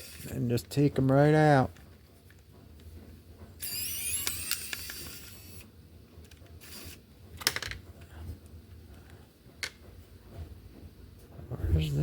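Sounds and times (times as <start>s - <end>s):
electric screwdriver whirring: 0.0s - 0.3s, 3.6s - 5.7s, 6.6s - 7.0s.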